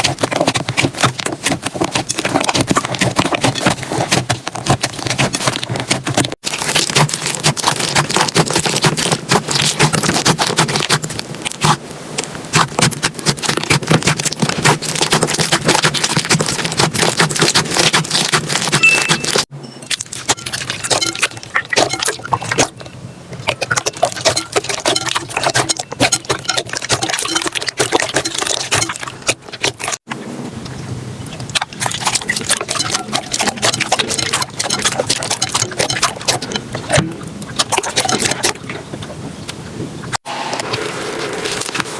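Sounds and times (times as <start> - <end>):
slime crackling and popping: 0.0 - 11.8, 12.5 - 22.6.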